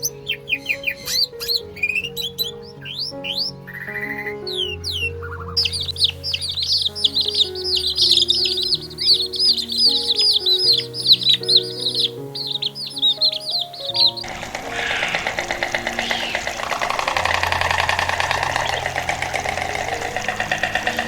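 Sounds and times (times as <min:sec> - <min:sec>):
background music with held notes: 0:00.0 - 0:21.0
small birds chirping: 0:00.0 - 0:21.0
rough rhythmic sound: 0:05.6 - 0:21.0.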